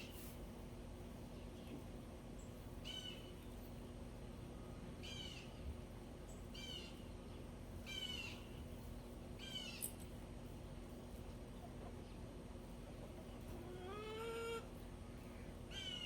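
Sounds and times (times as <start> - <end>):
bird calling: 15.7 - 16.0.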